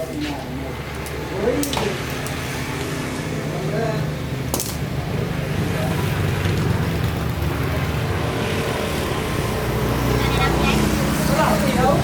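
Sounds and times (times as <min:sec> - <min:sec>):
motorbike engine running: 0:05.4 - 0:09.8.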